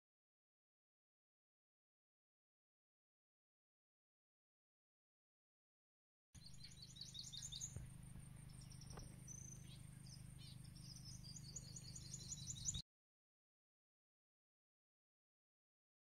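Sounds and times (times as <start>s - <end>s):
low steady hum: 6.4s - 12.8s
small birds chirping: 6.4s - 12.8s.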